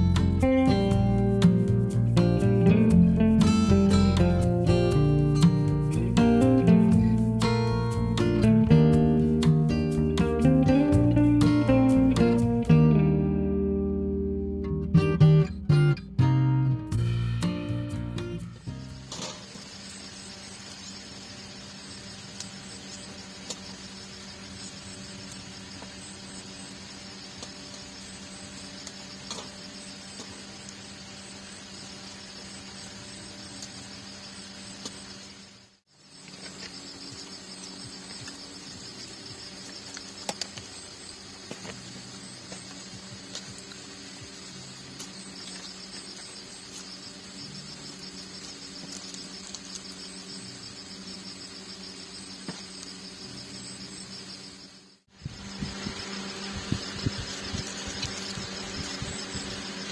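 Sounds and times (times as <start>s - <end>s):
crickets chirping: 0.0s - 15.9s, 16.9s - 59.9s
steady low hum: 16.9s - 59.9s.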